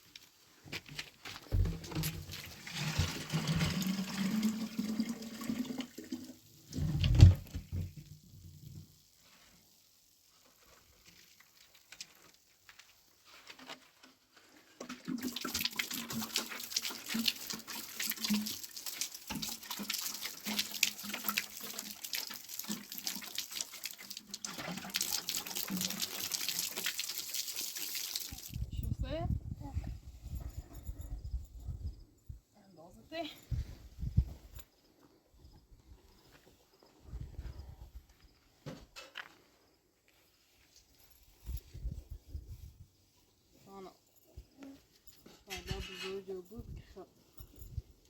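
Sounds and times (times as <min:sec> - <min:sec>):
running water pouring and splashing: 0:01.5 - 0:09.4, 0:14.8 - 0:28.6.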